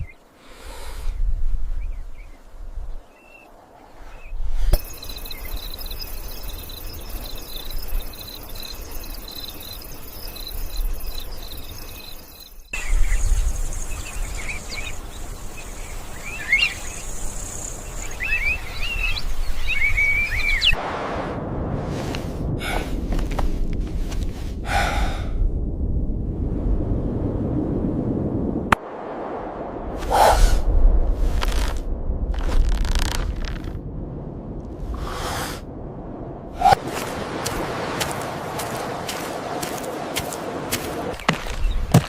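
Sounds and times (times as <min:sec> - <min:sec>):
birds chirping: 0:01.8 - 0:20.8, 0:38.1 - 0:42.0
insects trilling: 0:04.6 - 0:20.8
low rushing noise: 0:20.8 - 0:32.4.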